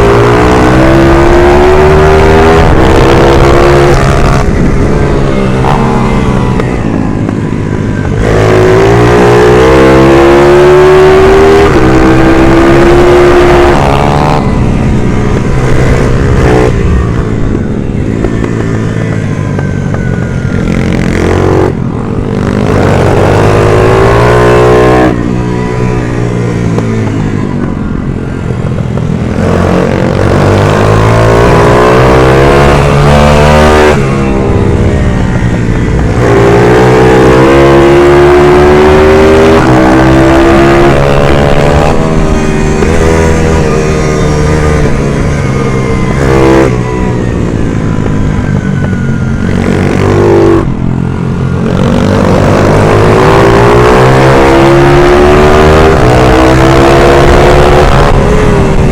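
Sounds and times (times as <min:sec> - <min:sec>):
minibike engine revving: 0:00.0 - 0:58.9.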